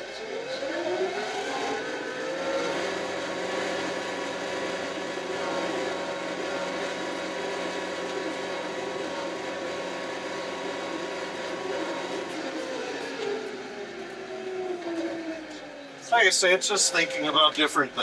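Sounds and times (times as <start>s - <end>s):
tractor diesel engine running: 2.4s - 13.2s.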